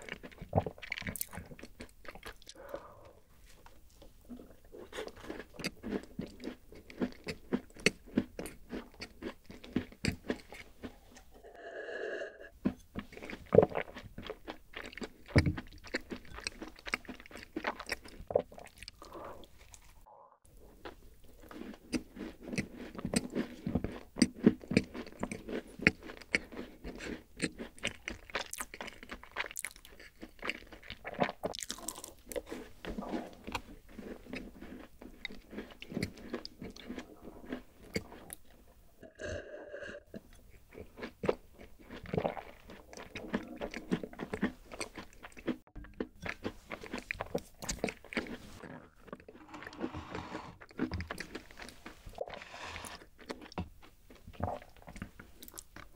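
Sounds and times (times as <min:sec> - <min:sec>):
cookie crunching while chewing: 0:00.0 - 0:02.6, 0:03.6 - 0:11.2, 0:12.6 - 0:19.0, 0:20.8 - 0:38.6, 0:40.2 - 0:49.9, 0:50.6 - 0:55.9
swallowing: 0:00.0 - 0:03.3.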